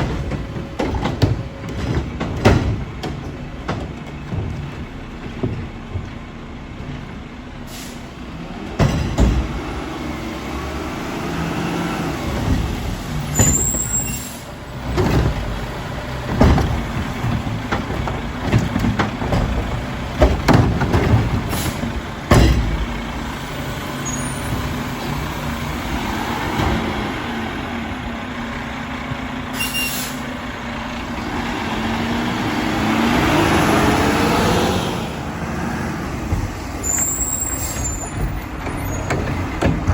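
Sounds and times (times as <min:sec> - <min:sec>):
carts and lids clanking: 0:00.0 - 0:07.2, 0:08.7 - 0:09.9, 0:12.0 - 0:28.1, 0:36.2 - 0:39.9
garbage truck engine running: 0:00.0 - 0:39.9
air brake hisses: 0:07.7 - 0:08.2, 0:13.8 - 0:14.5, 0:29.5 - 0:30.3.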